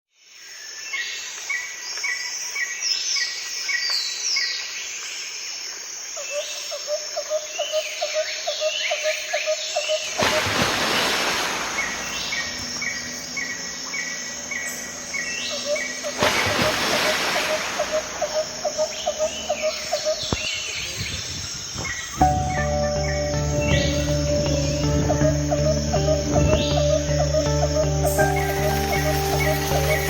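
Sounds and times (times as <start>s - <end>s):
wild birds singing: 6.1s - 30.0s.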